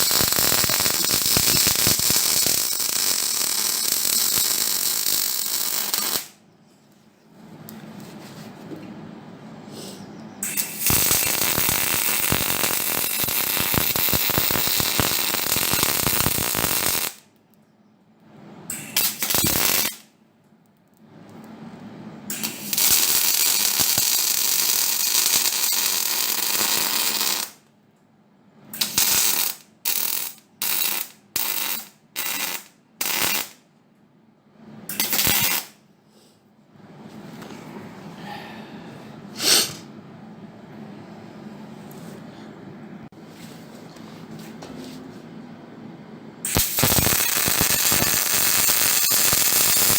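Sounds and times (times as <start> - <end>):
arc welding crackle: 0.0 - 6.4, 10.4 - 17.3, 18.7 - 20.1, 22.3 - 27.6, 28.8 - 33.6, 34.9 - 35.8, 46.4 - 49.9
short tack welds: 0.0 - 6.4, 10.4 - 17.2, 18.7 - 20.1, 22.3 - 27.6, 28.7 - 33.6, 34.9 - 35.8, 46.4 - 49.9.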